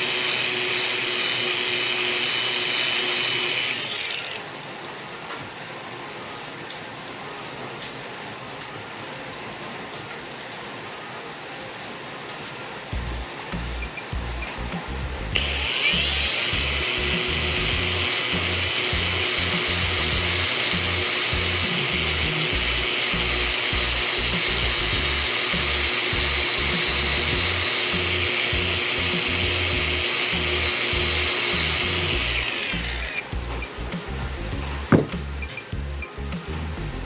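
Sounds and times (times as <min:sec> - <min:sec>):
small power tool whining: 0:00.0 - 0:04.6, 0:13.6 - 0:33.8
background music with a beat: 0:13.0 - 0:15.4, 0:33.3 - 0:37.0.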